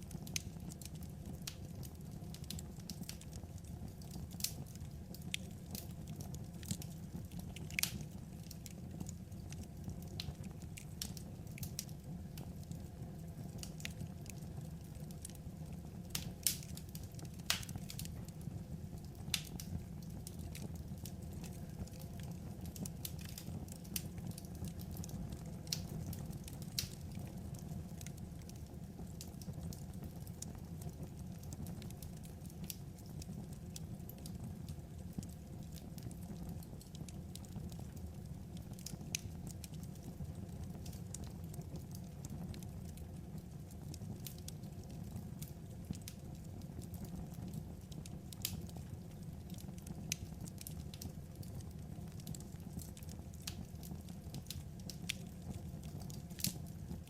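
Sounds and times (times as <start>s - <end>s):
crackling wood fire: 0.0s - 57.0s.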